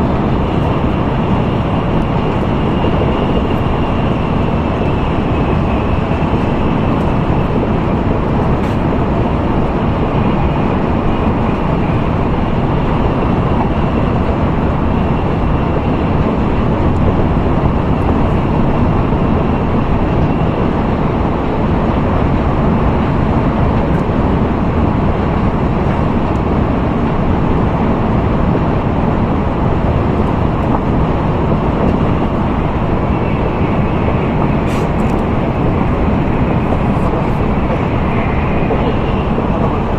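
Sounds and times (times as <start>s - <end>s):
train running rumble: 0.0s - 39.9s
faint high whine: 29.6s - 39.9s.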